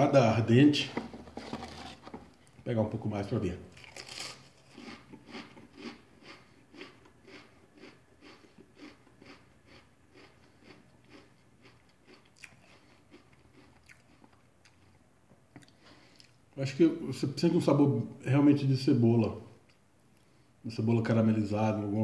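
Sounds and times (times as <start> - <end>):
person chewing crisps: 3.7 - 16.4.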